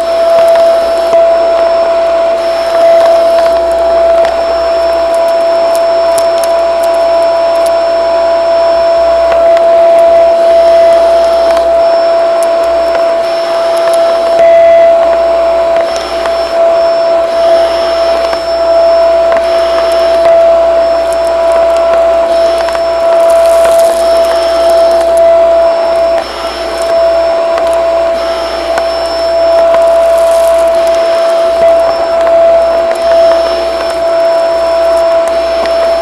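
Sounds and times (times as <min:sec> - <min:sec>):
vacuum cleaner running: 0:00.0 - 0:36.0.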